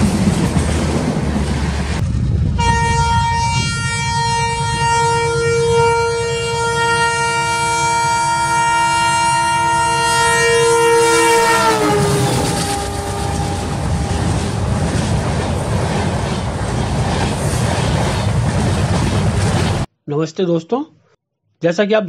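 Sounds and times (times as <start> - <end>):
train rumbling and clattering: 0.0 - 6.3, 11.2 - 19.9
train horn: 2.6 - 14.2.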